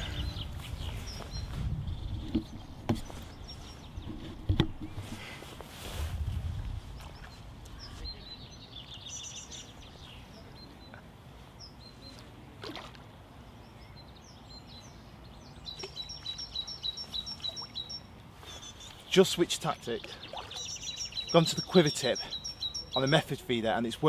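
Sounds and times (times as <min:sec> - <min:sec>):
birds calling: 0:00.0 - 0:05.6, 0:13.4 - 0:24.0
faint open-air background noise: 0:00.0 - 0:24.0
bird trill: 0:15.6 - 0:18.9, 0:20.2 - 0:23.3
high bird chirps: 0:15.6 - 0:19.1, 0:20.2 - 0:23.3.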